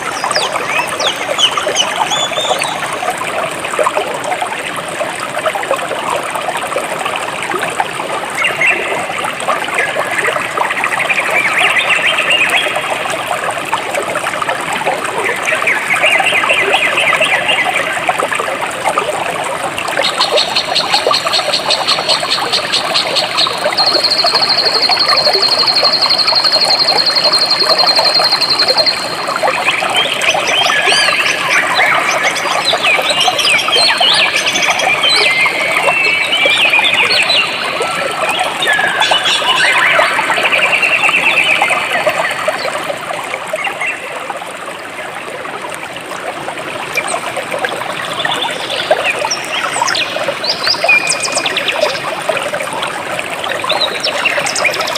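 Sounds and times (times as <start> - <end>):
birds chirping: 0.0 - 2.9, 20.1 - 42.6
stream flowing: 0.0 - 54.9.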